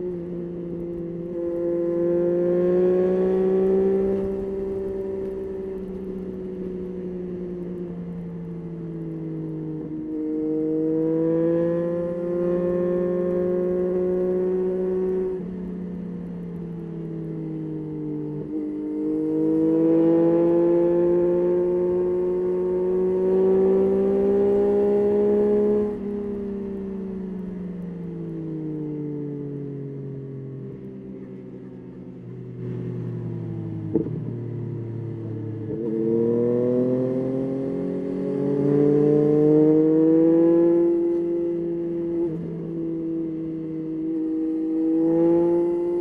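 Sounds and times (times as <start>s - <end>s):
motorcycle engine accelerating: 0.0s - 7.9s, 18.1s - 27.5s, 32.1s - 46.0s.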